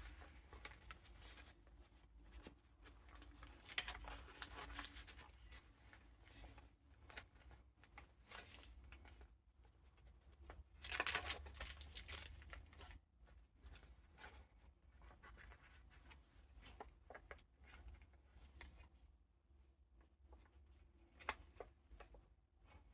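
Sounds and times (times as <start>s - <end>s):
paper pages rustling: 0.0s - 9.2s, 10.8s - 12.9s.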